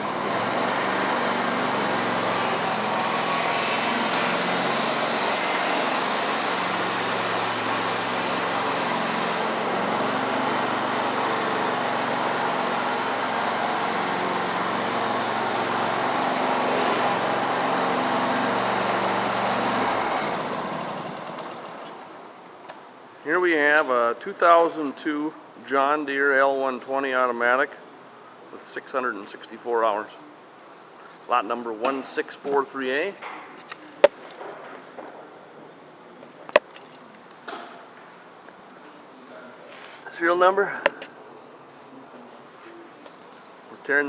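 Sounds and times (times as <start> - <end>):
lawn tractor engine running: 0.0 - 22.4.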